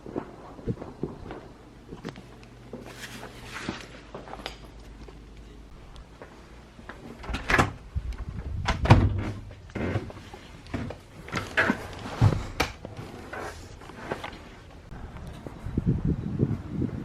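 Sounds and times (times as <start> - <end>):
faint low rumble: 4.8 - 12.6.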